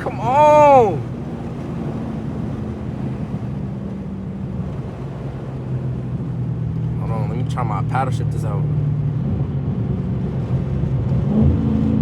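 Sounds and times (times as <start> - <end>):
car exhaust drone: 0.0 - 12.0
road and wind noise: 0.0 - 12.0.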